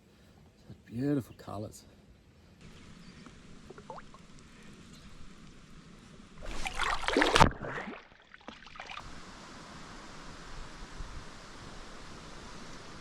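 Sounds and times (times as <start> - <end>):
faint steady hiss: 0.0 - 7.5, 8.8 - 13.0
water splashing against a kayak: 6.4 - 9.1.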